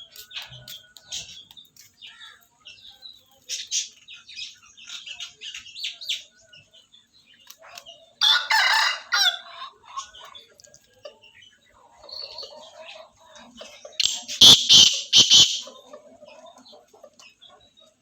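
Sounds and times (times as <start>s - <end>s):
small birds chirping: 0.0s - 8.2s, 9.5s - 18.0s
rooster crowing: 8.2s - 9.6s.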